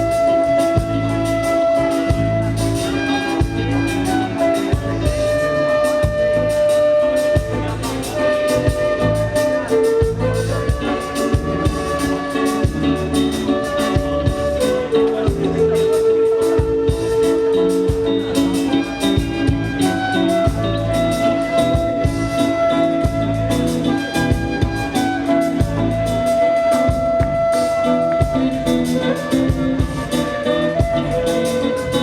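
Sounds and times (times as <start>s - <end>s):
lead guitar holding long notes: 0.0s - 32.0s
live band playing instrumental: 0.0s - 32.0s.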